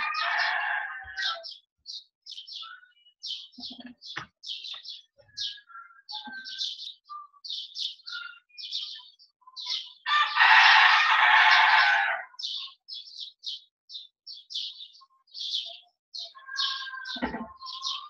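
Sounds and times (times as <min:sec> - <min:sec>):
small bird chirping: 0:01.2 - 0:10.0, 0:12.6 - 0:18.0
whistled bird notes: 0:05.3 - 0:07.4.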